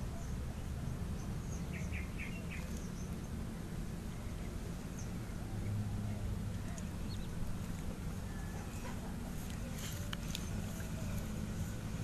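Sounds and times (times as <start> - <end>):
bird chirping: 0.1 - 7.6.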